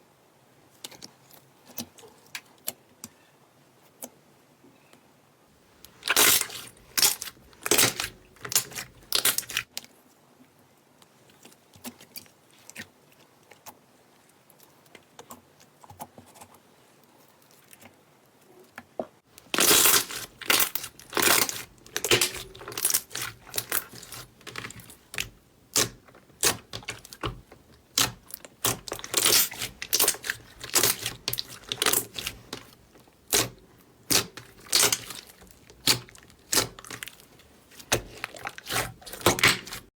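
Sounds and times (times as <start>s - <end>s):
slime popping and crackling: 5.9s - 9.7s, 19.4s - 39.9s.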